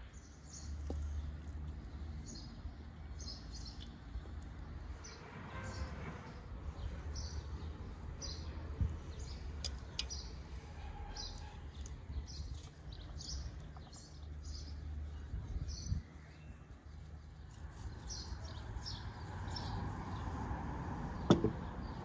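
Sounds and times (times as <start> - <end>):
sharp knocks: 21.3 - 21.6.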